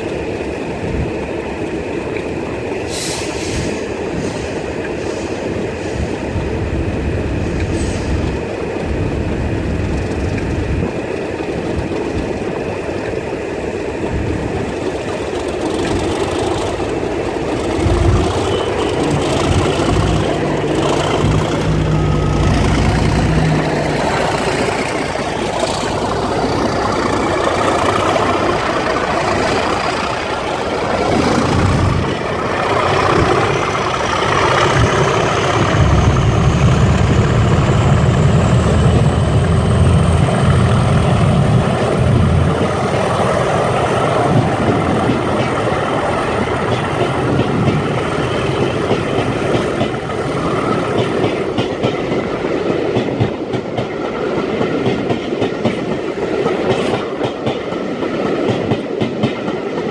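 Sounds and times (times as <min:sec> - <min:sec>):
diesel locomotive engines running: 0:00.0 - 0:59.9.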